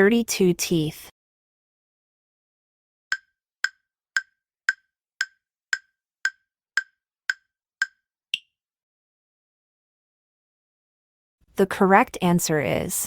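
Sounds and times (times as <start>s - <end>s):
countdown timer ticks: 3.1s - 8.5s.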